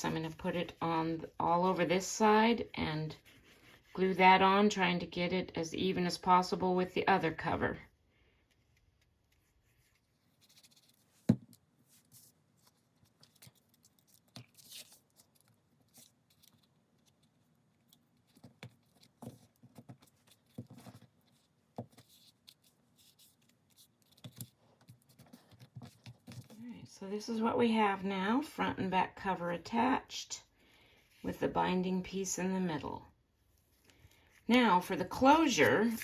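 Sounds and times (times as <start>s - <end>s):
paper rustling and tapping: 17.9s - 26.6s.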